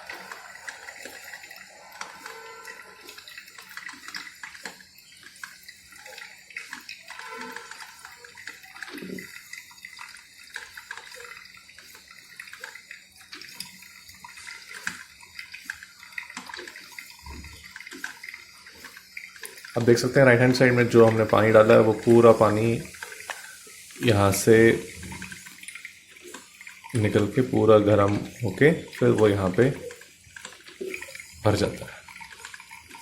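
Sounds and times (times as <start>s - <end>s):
coffee maker hissing and trickling: 0.0s - 33.0s
small pops and gurgles: 0.0s - 33.0s.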